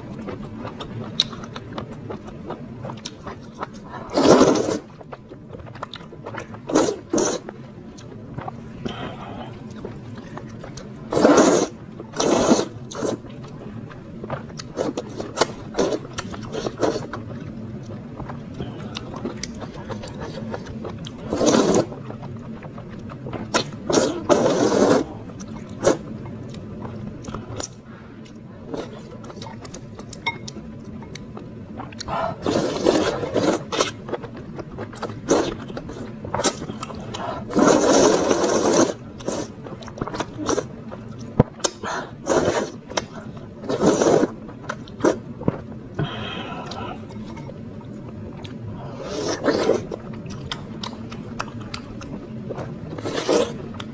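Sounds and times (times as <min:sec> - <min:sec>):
chewing: 0:00.2 - 0:45.6, 0:48.4 - 0:53.9
noodle slurping: 0:04.1 - 0:05.0, 0:06.6 - 0:07.5, 0:11.1 - 0:13.2, 0:21.2 - 0:22.0, 0:23.9 - 0:25.2, 0:32.0 - 0:34.0, 0:35.2 - 0:40.7, 0:42.2 - 0:44.4, 0:48.8 - 0:50.0, 0:52.9 - 0:53.7.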